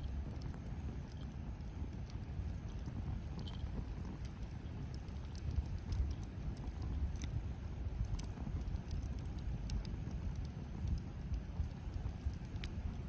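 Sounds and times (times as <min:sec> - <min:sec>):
bonfire crackling and popping: 0:00.0 - 0:13.0.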